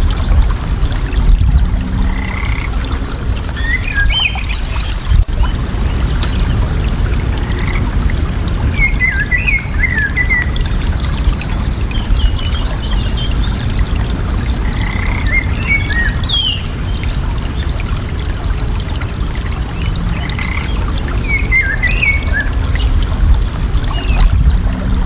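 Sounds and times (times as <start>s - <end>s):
water rushing: 0.0s - 25.0s
songbirds chirping: 2.1s - 7.8s, 8.7s - 17.7s.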